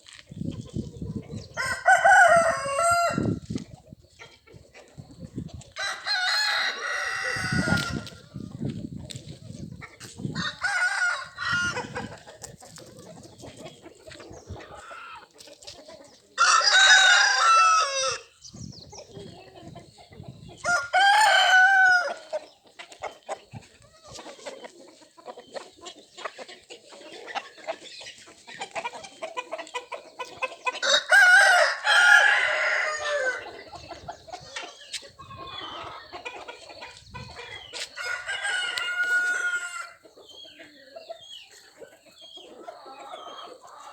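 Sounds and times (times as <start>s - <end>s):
chicken calls: 0.0s - 43.9s
roosters crowing: 1.4s - 3.6s, 5.7s - 8.7s, 10.0s - 12.5s, 16.3s - 18.3s, 20.6s - 22.4s, 30.6s - 34.1s, 35.2s - 36.5s, 37.2s - 40.7s.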